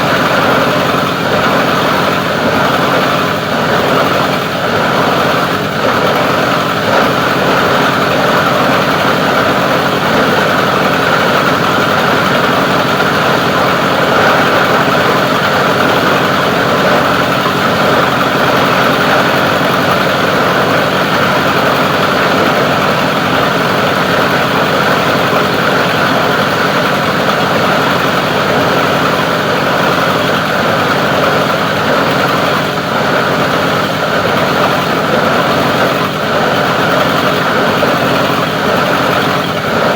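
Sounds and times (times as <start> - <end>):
grinding machine drone: 0.0 - 39.9.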